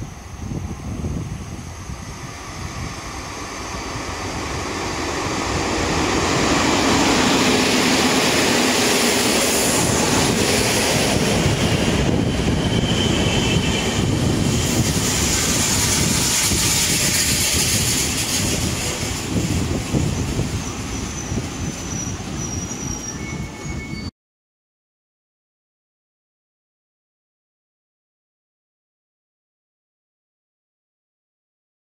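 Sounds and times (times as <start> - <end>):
train wheels on rails: 0.1 - 24.1
high squeal: 5.2 - 24.1.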